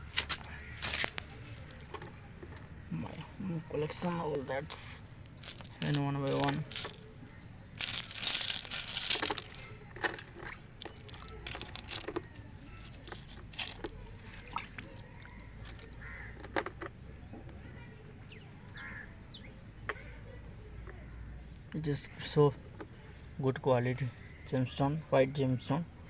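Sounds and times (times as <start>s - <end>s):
gravel scraping rustle: 0.0s - 16.4s.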